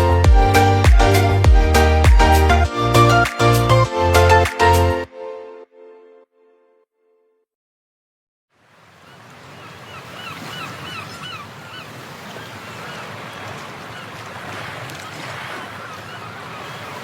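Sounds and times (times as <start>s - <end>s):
background music: 0.0s - 6.3s.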